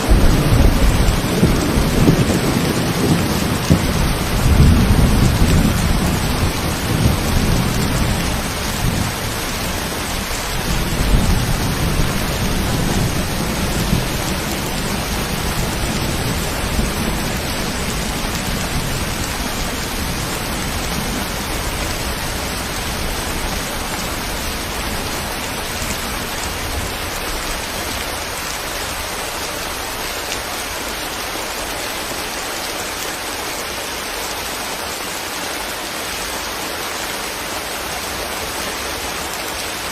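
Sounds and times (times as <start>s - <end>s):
low rumble of thunder: 0.0s - 29.9s
rain hiss: 0.0s - 39.9s.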